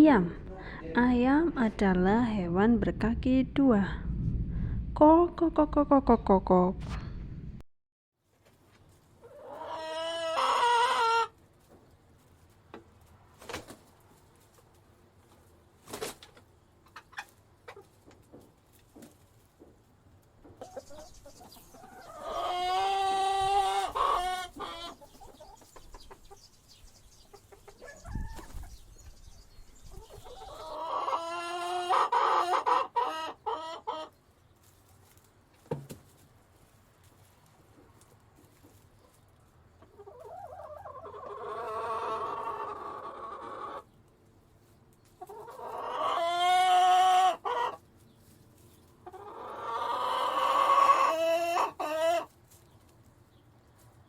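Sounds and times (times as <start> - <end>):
faint chicken clucks: 9.2 - 11.9, 16.4 - 18.4, 20.4 - 34.7, 37.7 - 54.0.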